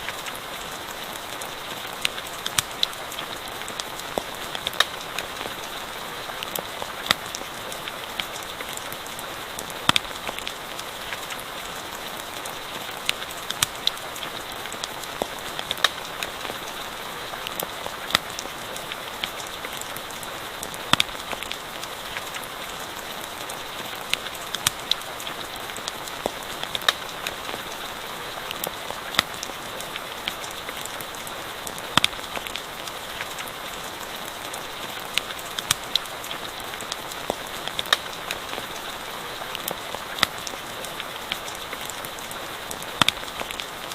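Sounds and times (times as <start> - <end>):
campfire crackling: 0.0 - 43.9
steady rain falling: 0.0 - 43.9.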